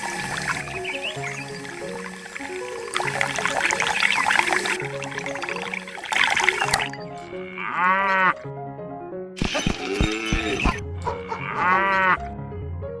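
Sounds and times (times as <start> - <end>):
background music: 0.0 - 13.0
animal bleats with wavering pitch: 7.1 - 8.5, 9.6 - 12.3
harsh noisy animal call: 9.4 - 12.2.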